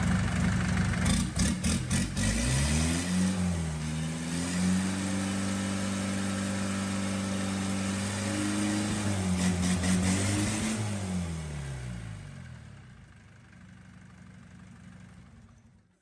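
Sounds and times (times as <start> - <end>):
diesel engine revving: 0.0 - 12.8.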